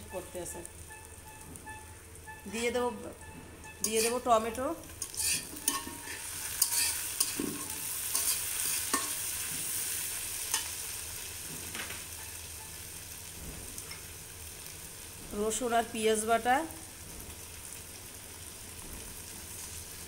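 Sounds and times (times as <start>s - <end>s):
tomatoes sizzling in hot oil: 0.0s - 3.1s, 3.8s - 20.0s
metal spatula scraping a pan: 3.6s - 10.8s.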